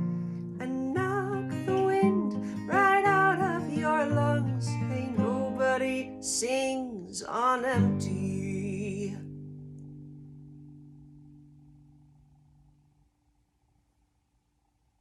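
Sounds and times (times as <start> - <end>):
person singing slow melody: 0.0 - 9.3
acoustic guitar: 0.0 - 12.9.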